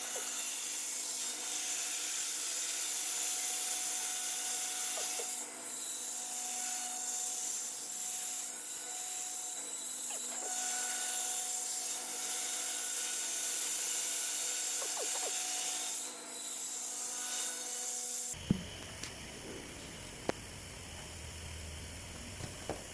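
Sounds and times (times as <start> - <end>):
router cutting foam: 0.0 - 18.4
high spindle whine: 10.0 - 11.3, 14.8 - 15.7.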